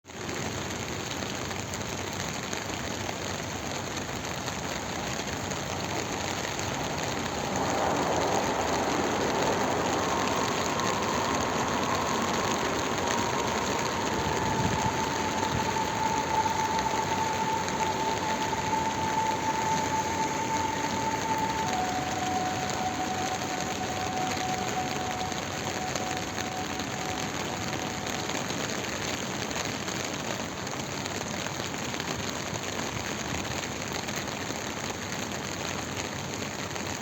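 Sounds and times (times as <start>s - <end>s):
rain falling: 0.0s - 37.0s
steady mid-pitched tone: 4.7s - 30.1s.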